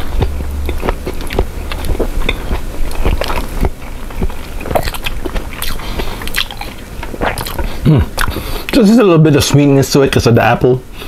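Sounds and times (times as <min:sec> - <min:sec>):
person chewing with mouth clicks: 0:00.0 - 0:08.8.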